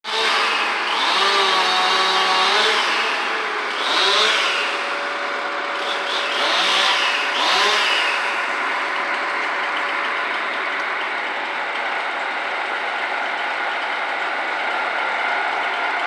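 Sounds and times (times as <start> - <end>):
chainsaw revving: 0.0 - 12.4.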